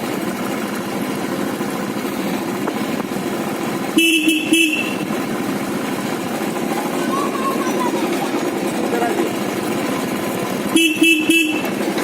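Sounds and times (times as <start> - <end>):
motorcycle engine: 0.0 - 12.0
road noise: 0.0 - 12.0
vehicle horn honk: 4.0 - 5.2, 10.7 - 11.8.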